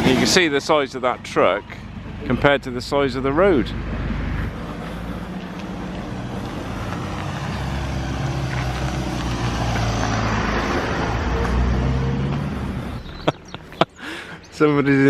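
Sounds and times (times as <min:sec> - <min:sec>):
truck passing by: 0:00.0 - 0:15.0.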